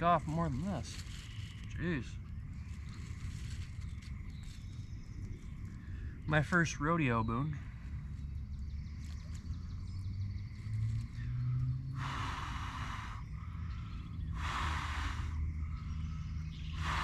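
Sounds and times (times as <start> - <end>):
low rumble: 0.0 - 17.0
person blowing on fire: 12.0 - 13.2, 14.4 - 15.4, 16.8 - 17.0.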